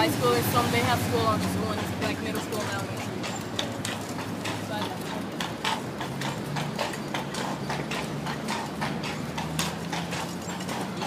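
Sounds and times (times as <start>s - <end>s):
horse hooves clip-clopping: 0.0s - 11.0s.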